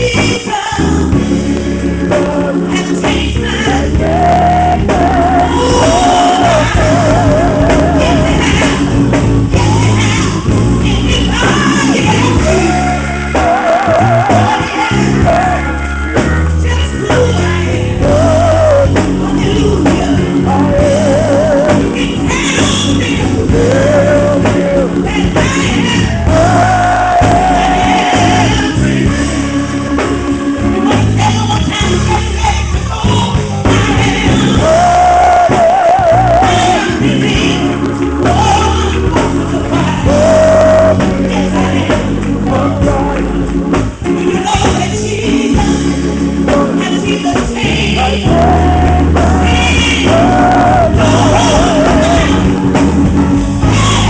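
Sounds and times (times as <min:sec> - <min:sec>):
band with heavy bass: 0:00.0 - 0:54.0
singer holding vibrato notes: 0:01.9 - 0:29.4.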